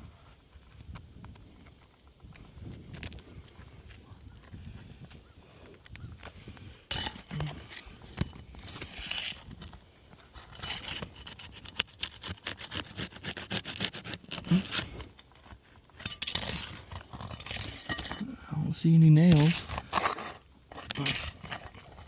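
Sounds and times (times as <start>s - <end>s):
shingles scraping and snapping: 6.2s - 18.2s, 19.3s - 22.0s.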